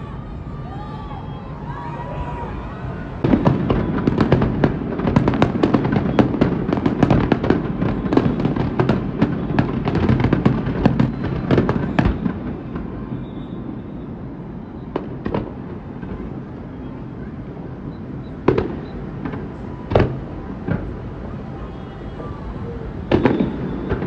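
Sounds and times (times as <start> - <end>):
fireworks bangs and crackles: 1.8 - 24.0.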